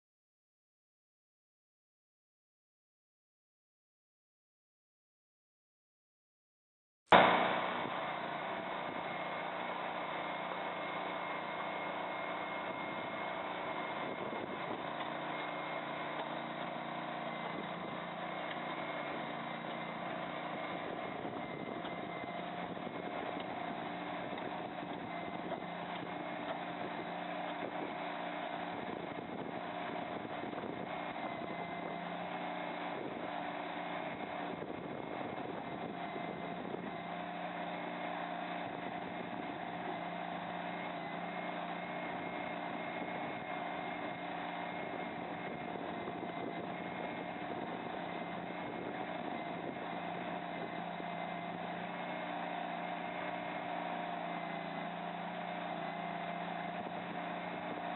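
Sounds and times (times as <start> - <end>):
loader engine running: 7.1 - 57.9.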